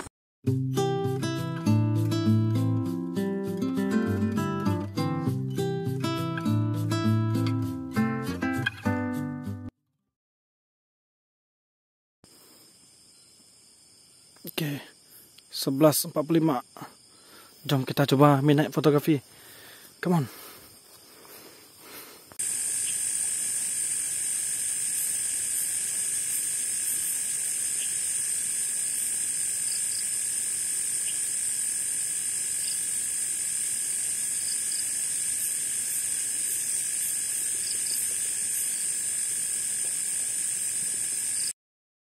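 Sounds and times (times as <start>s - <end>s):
faint insect chirps: 12.3s - 41.6s
insects chorus: 12.3s - 41.6s.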